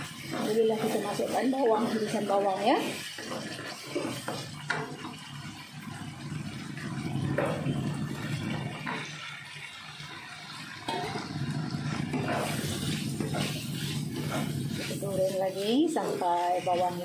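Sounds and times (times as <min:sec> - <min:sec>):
wooden spatula scraping a wok: 0:00.0 - 0:05.2, 0:11.0 - 0:17.0
oil sizzling: 0:00.0 - 0:17.0.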